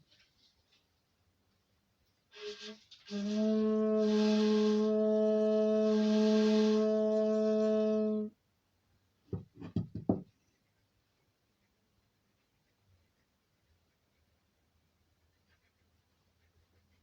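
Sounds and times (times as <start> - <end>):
bamboo flute low note: 2.4 - 8.3.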